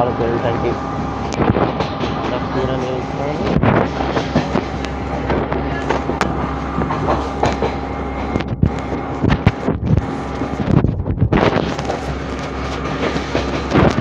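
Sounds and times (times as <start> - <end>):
train rumble and air rush: 0.0 - 14.0
train wheels clacking: 1.5 - 9.6, 11.4 - 14.0.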